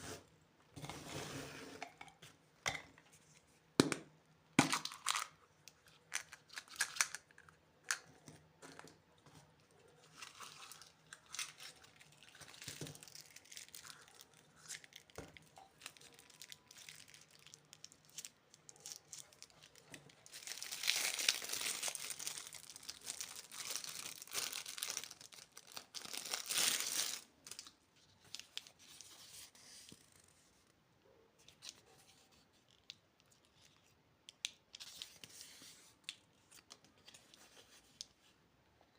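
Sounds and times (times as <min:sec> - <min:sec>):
candy wrapper crinkling: 0:04.6 - 0:08.9, 0:10.0 - 0:29.2
packaging tearing and rustling: 0:15.8 - 0:27.7.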